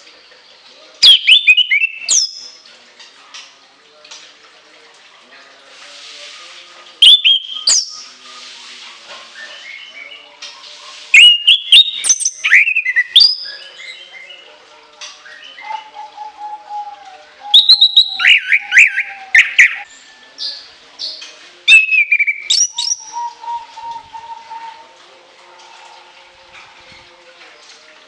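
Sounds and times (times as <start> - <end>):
thrush singing shrill whistles: 1.0 - 2.5, 7.0 - 8.1, 11.2 - 13.5, 17.5 - 20.5, 21.7 - 24.8.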